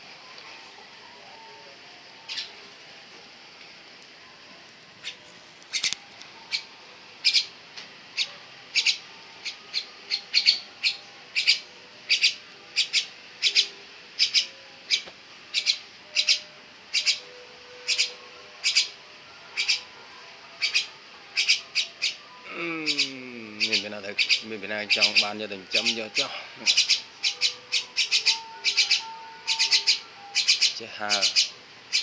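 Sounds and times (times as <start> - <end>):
myna bird sharp calls: 6.5 - 7.5, 8.2 - 19.0, 19.6 - 19.9, 20.6 - 32.0.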